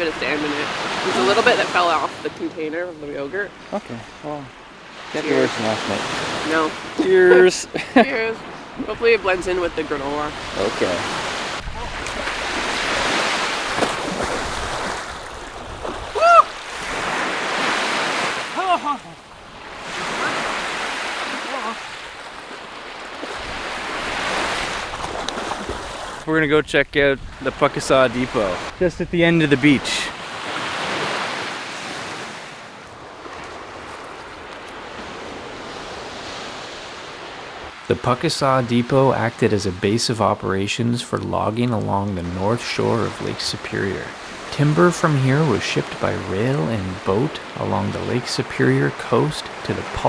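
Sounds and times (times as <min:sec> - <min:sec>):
waves washing onto sand beach: 0:00.0 - 0:26.4, 0:27.0 - 0:50.0
wind: 0:00.0 - 0:50.0
short high cry: 0:16.2 - 0:16.6, 0:18.6 - 0:19.2.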